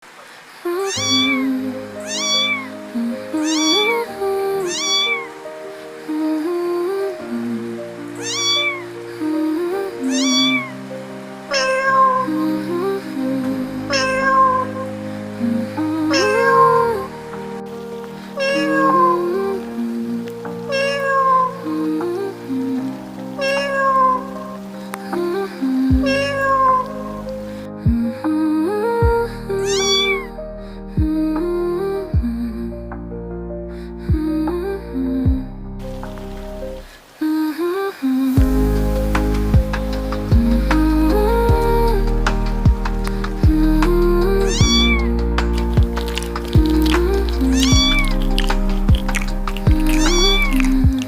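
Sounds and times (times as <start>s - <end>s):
background music with held notes: 0.7s - 37.0s, 38.3s - 51.0s
cat meowing: 0.9s - 1.4s, 2.1s - 2.7s, 3.4s - 4.0s, 4.7s - 5.4s, 8.2s - 8.9s, 10.1s - 10.7s, 11.5s - 12.2s, 13.9s - 14.6s, 18.4s - 19.2s, 20.7s - 21.6s, 23.4s - 24.3s, 26.1s - 26.9s, 29.6s - 30.3s, 44.5s - 45.1s, 46.1s - 51.0s.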